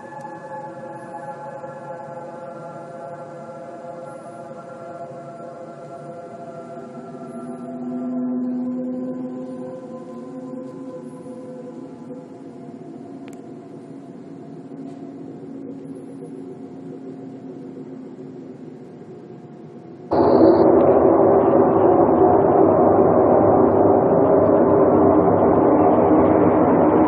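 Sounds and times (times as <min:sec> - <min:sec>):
low droning hum: 0:04.1 - 0:27.0
rough rumbling drone: 0:20.1 - 0:27.0.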